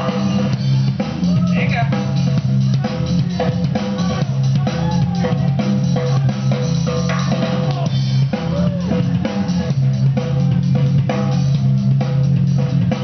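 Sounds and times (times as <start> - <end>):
bass line: 0.0 - 13.0
loud music with drum beat: 0.0 - 13.0.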